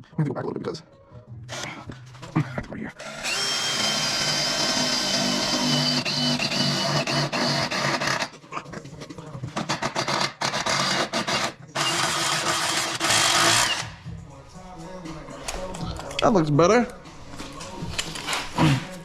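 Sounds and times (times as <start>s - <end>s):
power drill drilling: 3.0s - 8.3s, 9.9s - 13.9s.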